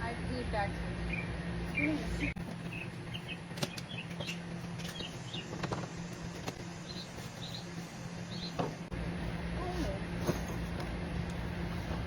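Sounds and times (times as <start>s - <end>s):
low steady hum: 0.0s - 12.0s
birds chirping: 1.0s - 8.9s.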